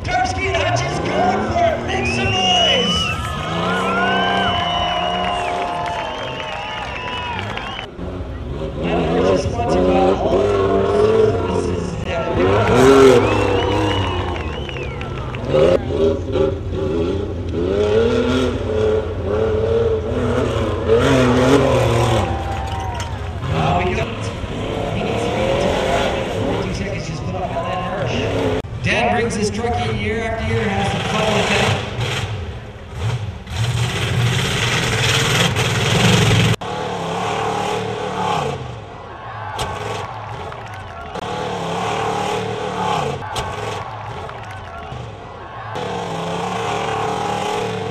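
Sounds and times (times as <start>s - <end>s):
truck engine revving: 0.0s - 47.9s.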